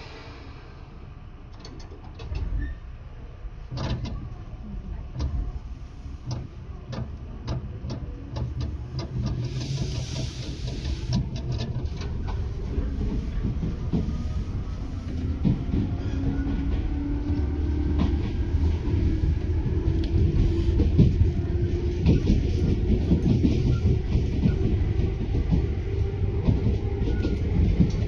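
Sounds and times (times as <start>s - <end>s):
electric train low hum: 0.0s - 28.0s
wheels clicking over rail joints: 6.2s - 14.3s.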